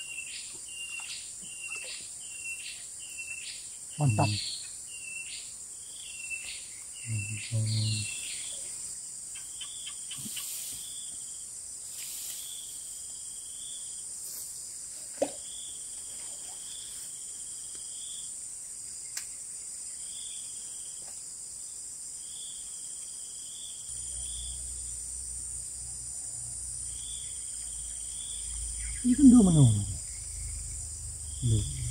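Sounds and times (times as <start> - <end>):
repeating insect or bird call: 0.0 - 14.8, 21.6 - 31.9
insects droning: 0.0 - 31.9.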